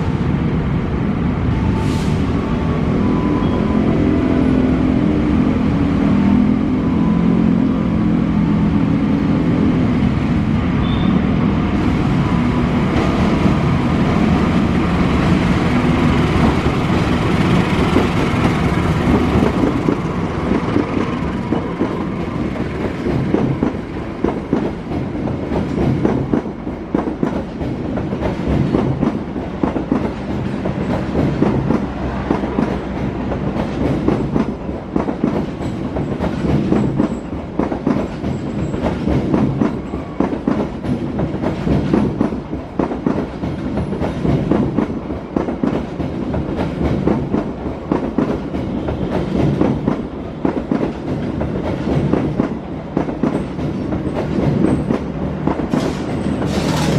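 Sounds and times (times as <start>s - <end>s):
train heavy rumble: 0.0s - 56.9s
wheels clattering over rail joints: 22.8s - 56.9s.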